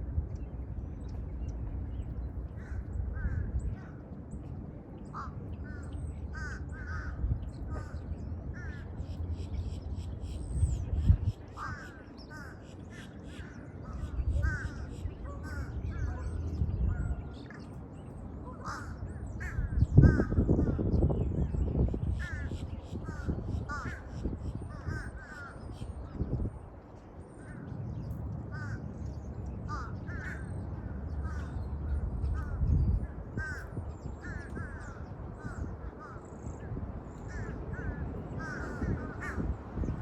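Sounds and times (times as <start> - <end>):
crows cawing: 5.1 - 8.9, 11.5 - 16.1, 18.6 - 20.8, 22.1 - 25.8, 28.5 - 28.8, 29.7 - 32.7, 33.4 - 39.6.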